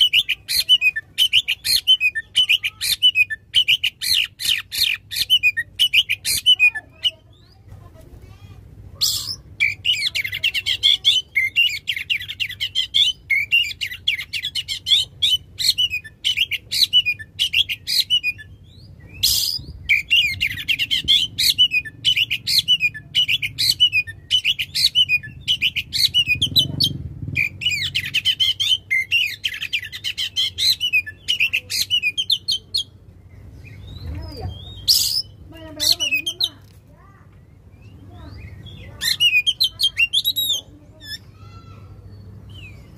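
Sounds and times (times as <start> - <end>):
bird singing whistles: 11.4 - 26.4, 33.6 - 35.4.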